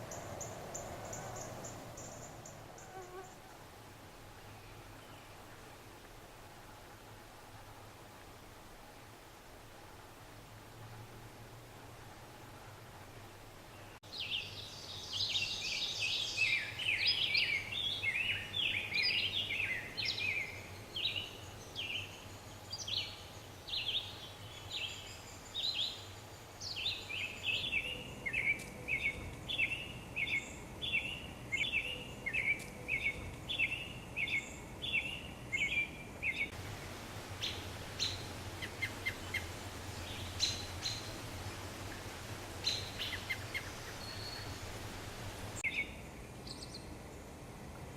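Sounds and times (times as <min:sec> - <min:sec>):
bird chirping: 0:13.8 - 0:36.6, 0:37.4 - 0:41.2, 0:42.6 - 0:44.9, 0:45.6 - 0:46.9.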